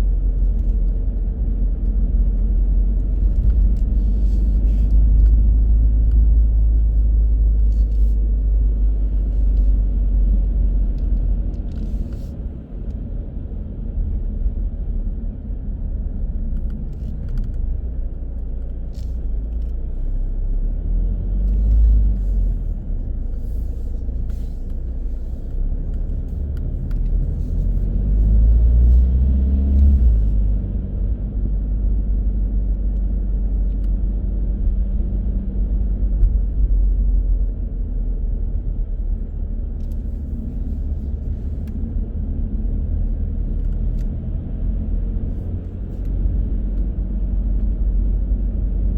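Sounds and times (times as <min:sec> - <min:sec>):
car road and engine rumble: 0:00.0 - 0:48.9.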